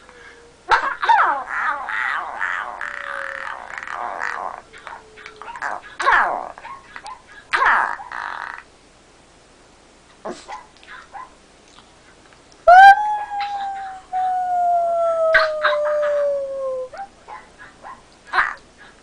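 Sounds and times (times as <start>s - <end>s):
dog howling: 1.1s - 5.8s, 12.7s - 17.1s.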